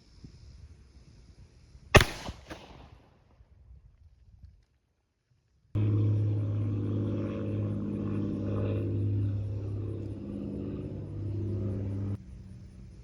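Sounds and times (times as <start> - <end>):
low mechanical drone: 5.8 - 13.0.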